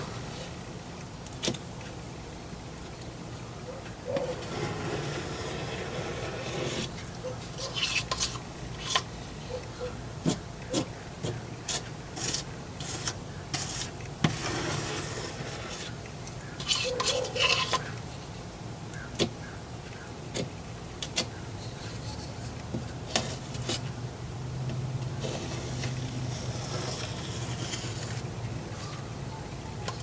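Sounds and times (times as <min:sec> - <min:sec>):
putty knife scraping: 0:04.2 - 0:09.1, 0:10.2 - 0:16.0, 0:16.6 - 0:17.9, 0:21.1 - 0:23.9, 0:25.2 - 0:28.3.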